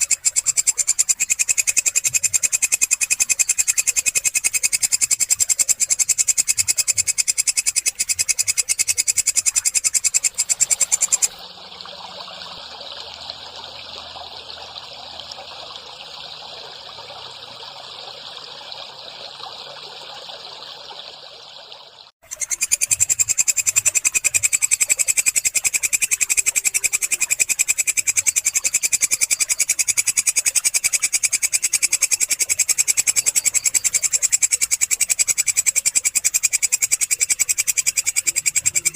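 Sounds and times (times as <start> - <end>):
katydid pulsing trill: 0.0 - 11.4, 22.3 - 38.9.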